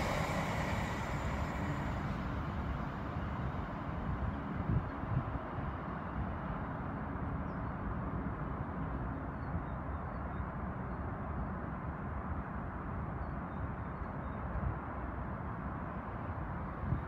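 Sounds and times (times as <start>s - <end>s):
distant train rumble: 0.0s - 5.6s.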